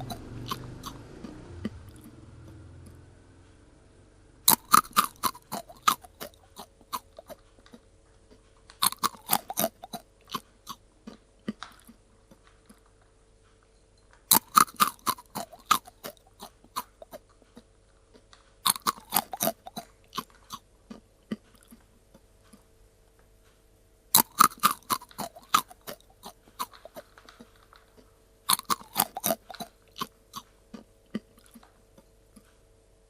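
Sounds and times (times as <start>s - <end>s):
cat crunching dry kibble: 0.0s - 1.0s, 4.5s - 21.8s, 24.2s - 30.6s.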